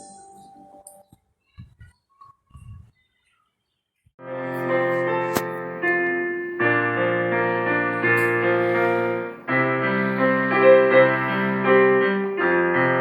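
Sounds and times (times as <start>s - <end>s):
held piano chords on keyboard: 4.2s - 13.0s.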